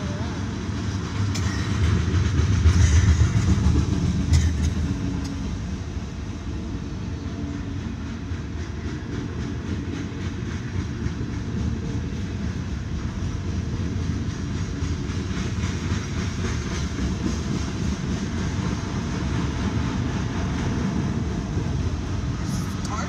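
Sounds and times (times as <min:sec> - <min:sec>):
freight cars rumbling: 0:00.0 - 0:23.0.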